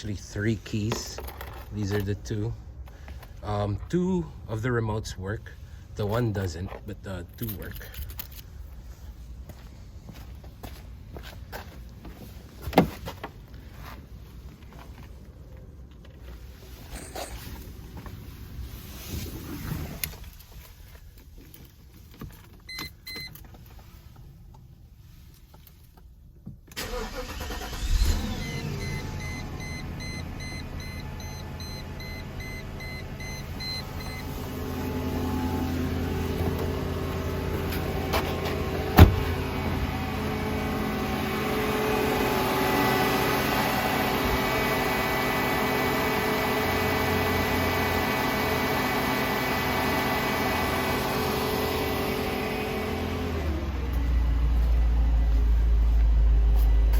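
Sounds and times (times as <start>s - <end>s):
starter motor cranking: 26.8s - 29.4s
car engine idling: 26.8s - 56.9s
warning chime beeping: 28.4s - 34.4s.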